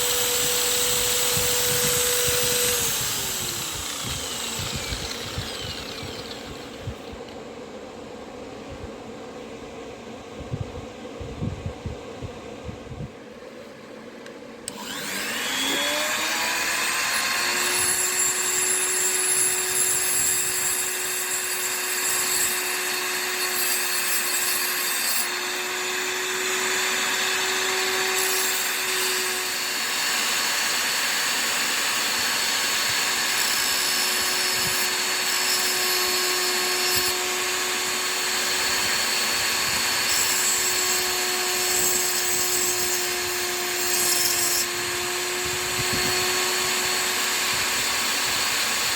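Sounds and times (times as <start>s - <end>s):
chisel grinding: 0.0s - 7.2s, 32.9s - 47.4s
grinder motor hum: 0.0s - 7.4s, 14.7s - 48.9s.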